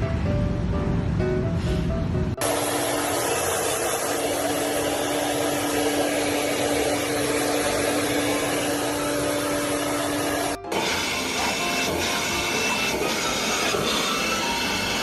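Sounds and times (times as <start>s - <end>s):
motor whirring: 2.4s - 15.0s.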